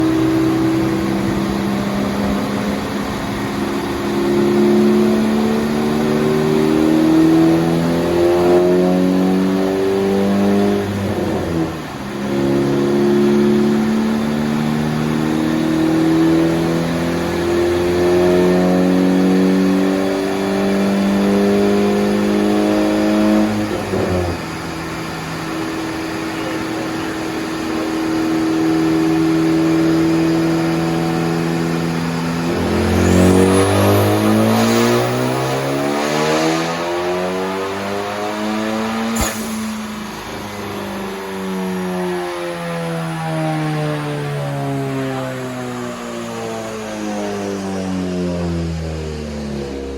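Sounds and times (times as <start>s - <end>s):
car engine revving: 0.0s - 49.9s.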